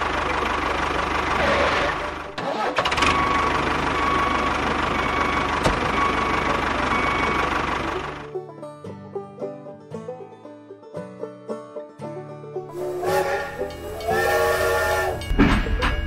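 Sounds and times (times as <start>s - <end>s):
tractor engine knocking: 0.0s - 8.3s, 15.2s - 16.0s.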